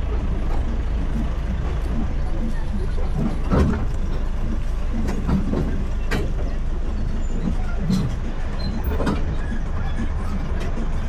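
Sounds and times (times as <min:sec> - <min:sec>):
moving vehicle low rumble: 0:00.0 - 0:11.0
sharp knocks and rattles: 0:02.9 - 0:09.7.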